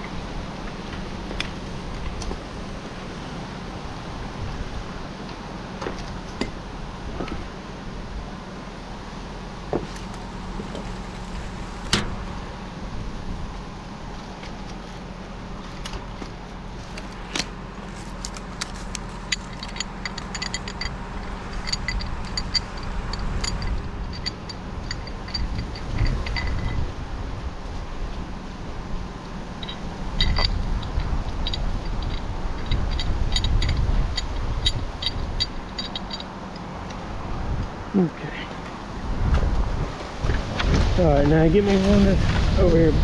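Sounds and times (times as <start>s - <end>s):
engine humming: 0.0s - 43.0s
metallic clinks and jingling hardware: 18.0s - 26.9s, 29.6s - 37.0s.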